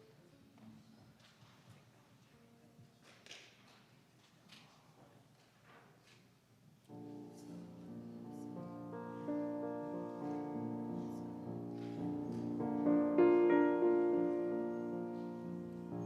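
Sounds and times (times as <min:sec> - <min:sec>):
slow keyboard chords: 0:06.9 - 0:16.0.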